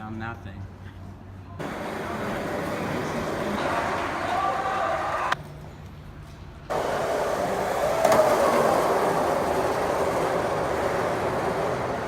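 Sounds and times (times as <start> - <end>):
skateboard wheels rolling on pavement: 1.6 - 5.8, 6.7 - 12.0.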